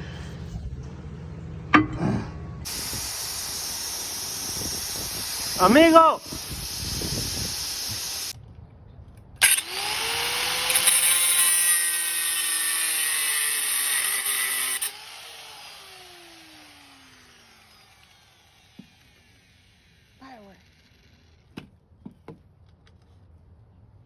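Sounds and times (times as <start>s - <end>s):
loud harsh hiss: 2.7s - 8.4s
power tool motor whine: 9.4s - 21.5s.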